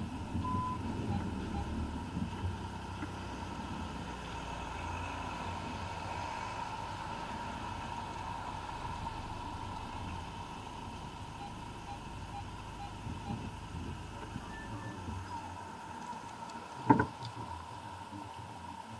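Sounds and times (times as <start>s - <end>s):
car engine idling: 0.0s - 18.9s
faint repeated beeps: 0.3s - 1.9s, 11.3s - 15.5s.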